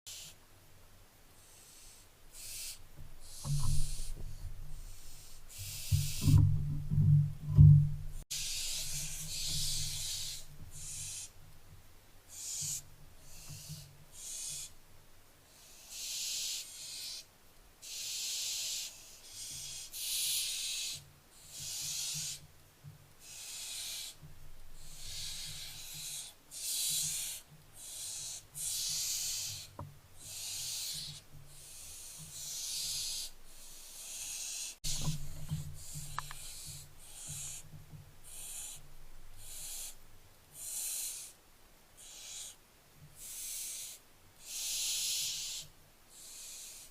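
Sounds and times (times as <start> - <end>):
owl chicks rasping hisses: 0.1 - 0.4, 1.3 - 6.4, 8.3 - 11.4, 12.3 - 14.8, 15.5 - 22.5, 23.2 - 41.4, 42.0 - 46.9
low steady hum: 2.2 - 12.3.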